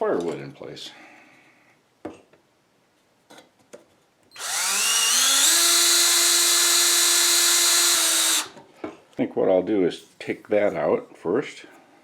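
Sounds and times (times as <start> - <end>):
power drill driving screws: 4.4 - 8.6.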